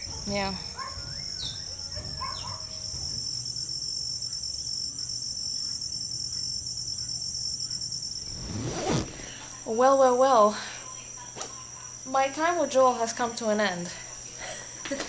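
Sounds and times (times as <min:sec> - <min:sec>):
insects trilling: 0:00.0 - 0:15.0
short rising chirps: 0:08.2 - 0:09.5.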